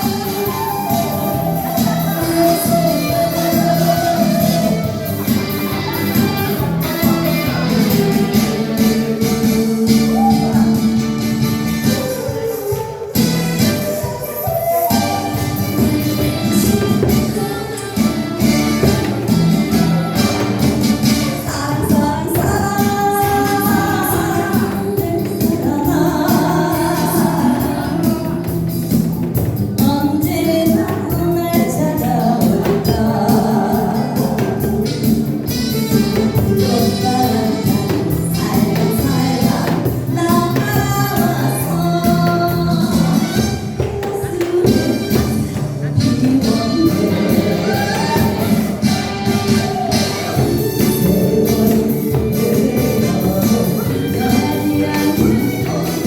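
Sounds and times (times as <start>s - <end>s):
instrumental accompaniment: 0.0s - 56.0s
person singing: 0.0s - 56.0s.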